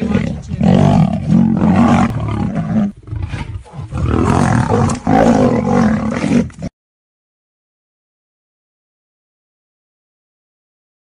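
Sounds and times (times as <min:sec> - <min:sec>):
big cat roaring: 0:00.0 - 0:06.7.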